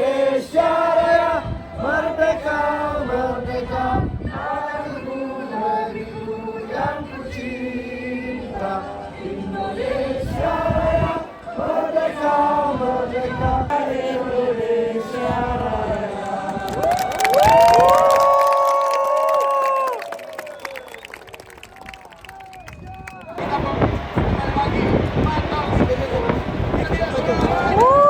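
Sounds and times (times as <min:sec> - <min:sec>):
group of voices singing: 0:00.0 - 0:17.6.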